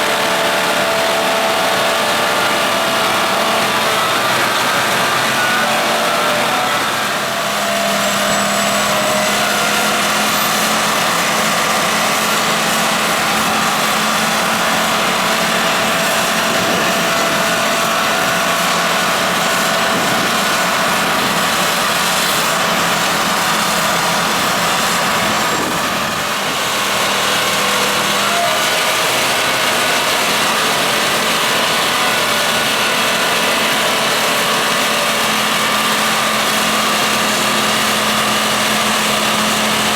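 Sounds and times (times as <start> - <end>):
snow blower engine drone: 0.0 - 39.9.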